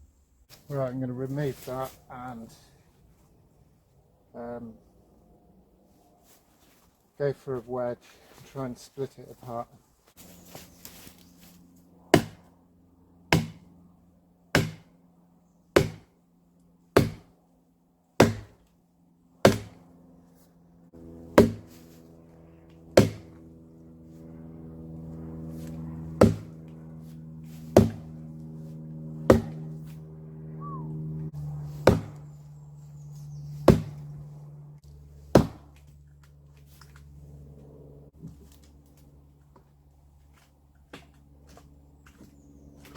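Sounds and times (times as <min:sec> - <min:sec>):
steady low drone: 0:10.2 - 0:40.2
hammer striking wedge in log: 0:12.2 - 0:12.4, 0:13.4 - 0:13.6, 0:14.6 - 0:14.9, 0:15.8 - 0:16.1, 0:17.0 - 0:17.3, 0:18.2 - 0:18.6, 0:19.4 - 0:19.8, 0:21.4 - 0:21.7, 0:23.0 - 0:23.4, 0:26.2 - 0:26.5, 0:27.8 - 0:28.0, 0:29.3 - 0:29.6, 0:31.8 - 0:32.2, 0:33.6 - 0:34.0, 0:35.3 - 0:35.7.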